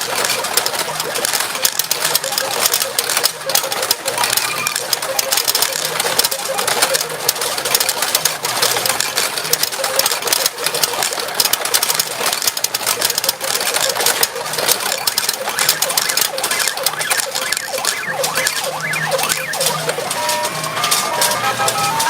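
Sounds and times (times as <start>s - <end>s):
steel balls clattering: 0.0s - 22.0s
short electronic tones: 2.2s - 6.7s, 12.9s - 22.0s.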